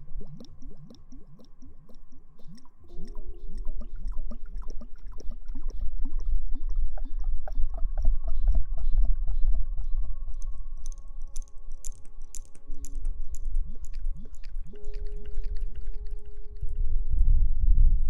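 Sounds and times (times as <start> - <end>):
deep rumble: 12.6 - 18.0.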